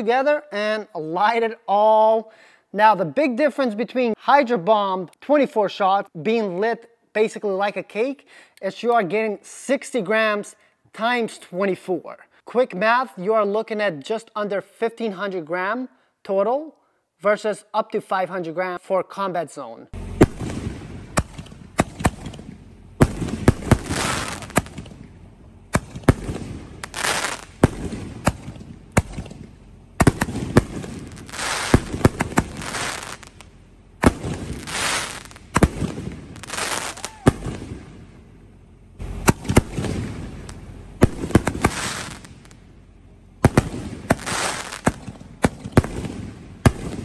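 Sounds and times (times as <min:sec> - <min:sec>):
firework crackling: 0:20.0 - 0:38.3, 0:39.0 - 0:42.8, 0:43.4 - 0:47.0
firework shell bangs: 0:20.2 - 0:33.4, 0:39.2 - 0:42.5.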